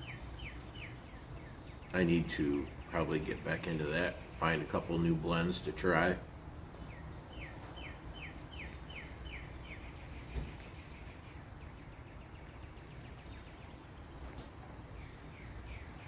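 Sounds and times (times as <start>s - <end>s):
bird chirping: 0.0s - 6.1s, 6.7s - 16.0s
faint thump: 10.3s - 10.6s.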